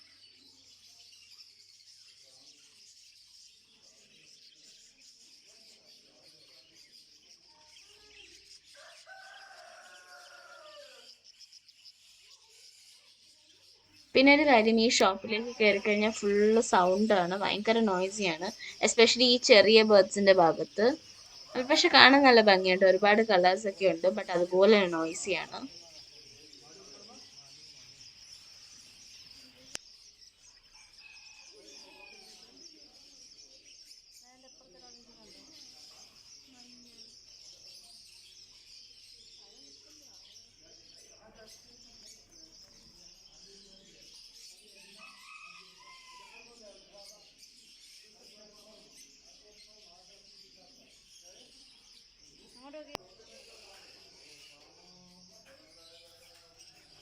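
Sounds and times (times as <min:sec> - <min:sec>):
cage birds chirping: 0:00.0 - 0:57.0
long bird call: 0:14.2 - 0:25.8.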